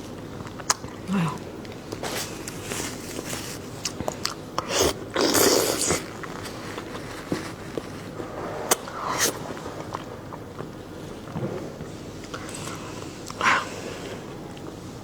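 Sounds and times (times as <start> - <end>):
person chewing and biting: 1.8 - 7.0.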